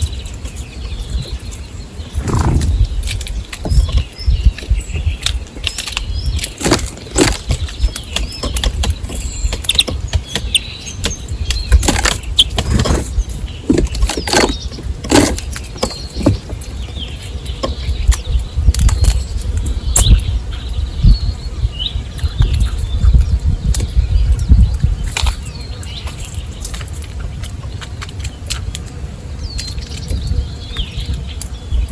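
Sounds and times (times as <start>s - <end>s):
birds tapping and fluttering: 0.0s - 31.9s
low rumble: 2.1s - 3.9s.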